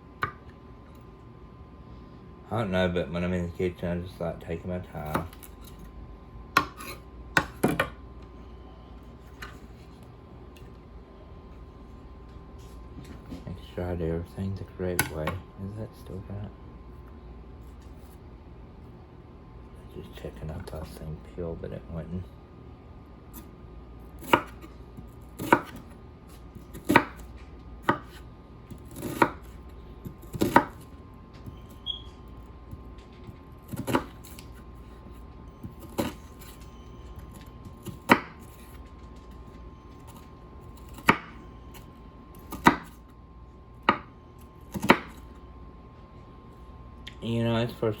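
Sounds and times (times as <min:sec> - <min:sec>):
knife chopping on cutting board: 0:05.0 - 0:05.5, 0:06.6 - 0:08.0, 0:24.2 - 0:24.7, 0:25.4 - 0:25.9, 0:26.7 - 0:28.2, 0:28.8 - 0:30.8, 0:33.7 - 0:34.4, 0:37.7 - 0:38.8, 0:40.8 - 0:41.4, 0:42.4 - 0:43.0, 0:44.7 - 0:45.2.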